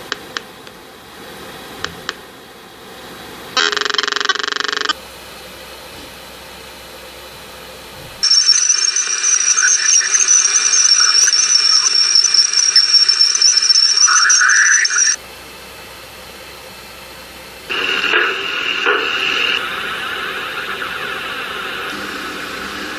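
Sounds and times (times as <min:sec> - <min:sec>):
steady high whistle: 0:08.2 - 0:15.2, 0:17.7 - 0:22.9.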